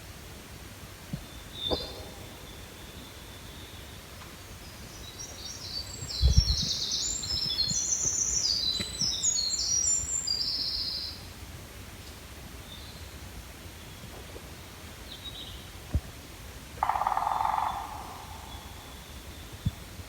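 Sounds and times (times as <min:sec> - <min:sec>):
songbird singing: 0:01.1 - 0:11.3, 0:16.8 - 0:20.0
low rumble on microphone: 0:05.8 - 0:09.1, 0:18.6 - 0:20.0.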